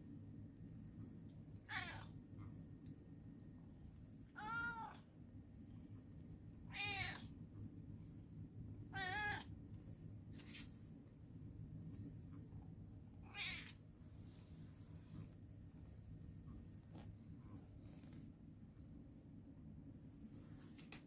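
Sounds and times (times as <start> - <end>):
steady low hum: 0.0 - 21.0
cat meowing: 1.7 - 2.1, 4.4 - 5.0, 6.7 - 7.3, 8.9 - 9.5, 13.3 - 13.8.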